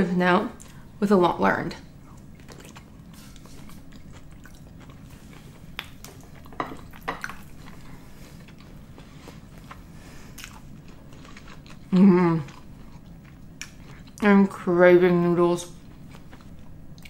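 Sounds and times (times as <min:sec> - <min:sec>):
person chewing with wet smacks: 0:02.1 - 0:14.3.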